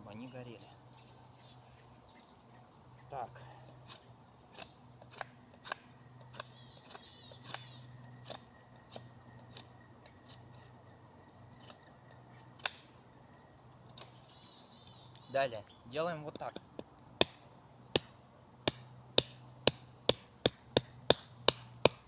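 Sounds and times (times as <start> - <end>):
blade scraping wooden stick: 3.7 - 10.8.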